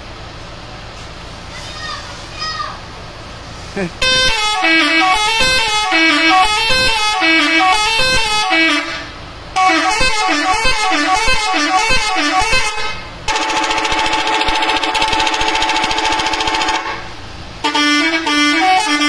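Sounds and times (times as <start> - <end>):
multi-tone bus horn melody: 4.0 - 19.0.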